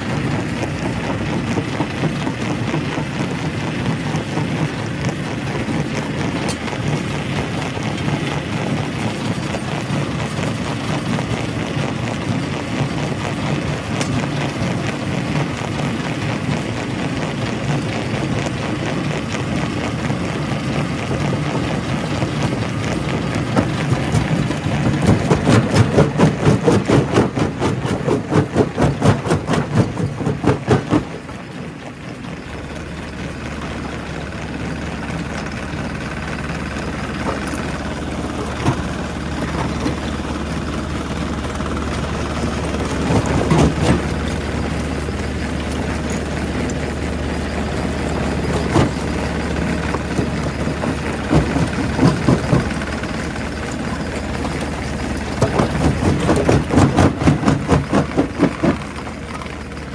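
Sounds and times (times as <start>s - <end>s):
rock-crushing machinery: 0.0s - 59.9s
rapid even knocking: 21.3s - 31.5s, 36.4s - 59.9s.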